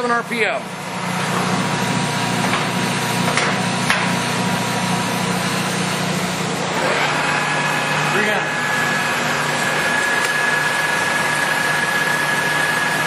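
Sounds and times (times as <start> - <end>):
lathe motor hum: 0.0 - 13.0.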